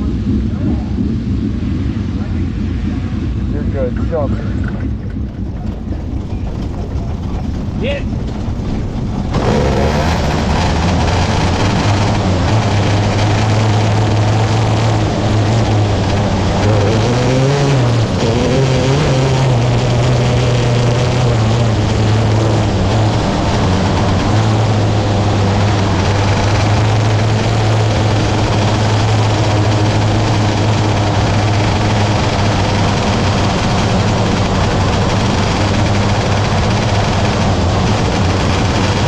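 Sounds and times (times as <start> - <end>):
race car engine running hard: 0.0 - 39.0.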